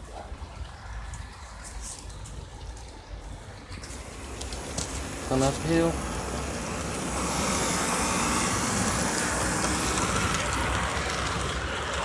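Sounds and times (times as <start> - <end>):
model train rolling and motor whir: 3.4 - 12.0.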